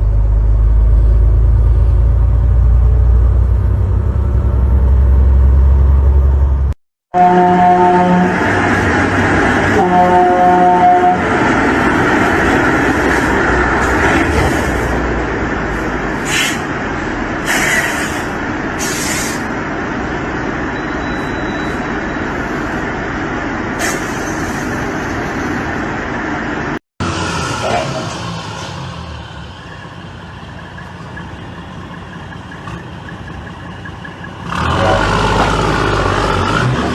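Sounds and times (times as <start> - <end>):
vehicle road and engine noise: 0.0 - 36.9
short hisses: 16.2 - 16.7, 17.4 - 19.4.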